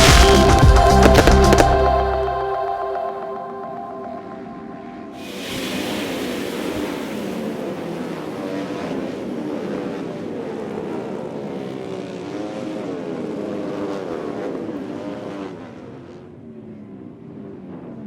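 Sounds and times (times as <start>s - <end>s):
racing motorcycle engines: 5.2s - 18.0s.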